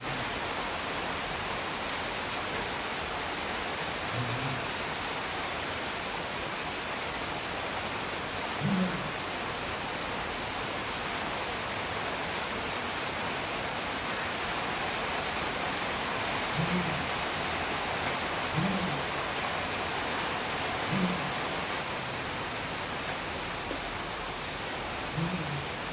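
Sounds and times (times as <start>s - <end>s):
heavy rain falling: 0.0s - 25.9s
faint low sounds: 25.1s - 25.9s.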